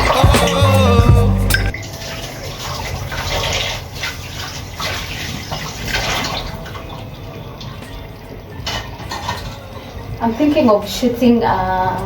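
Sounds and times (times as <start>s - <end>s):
running water splashing: 0.0s - 11.0s.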